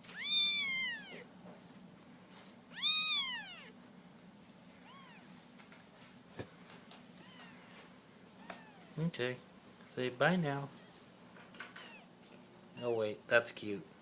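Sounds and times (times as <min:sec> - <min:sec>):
kittens mewing: 0:00.0 - 0:01.3, 0:02.7 - 0:03.8, 0:04.8 - 0:05.4, 0:07.2 - 0:07.7, 0:08.4 - 0:09.0, 0:11.7 - 0:12.2.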